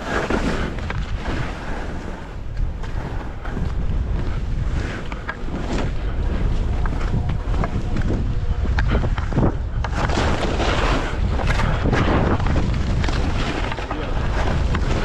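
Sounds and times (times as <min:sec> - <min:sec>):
skis hissing through snow: 0:00.0 - 0:03.6, 0:04.3 - 0:07.0, 0:10.0 - 0:11.7
wind rushing over microphone: 0:00.0 - 0:15.0.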